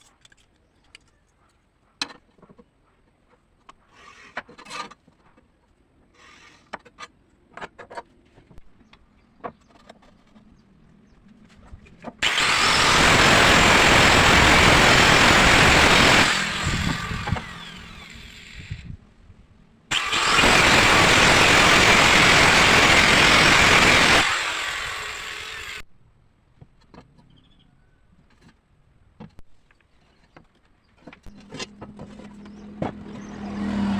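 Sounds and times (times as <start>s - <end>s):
power tool running: 12.2s - 18.8s, 19.9s - 25.8s.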